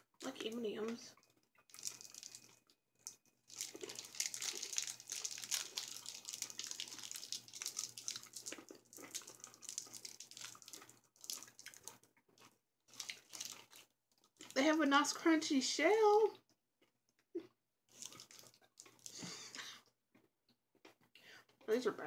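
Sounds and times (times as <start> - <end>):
crunching hard candy shell: 1.6 - 14.6.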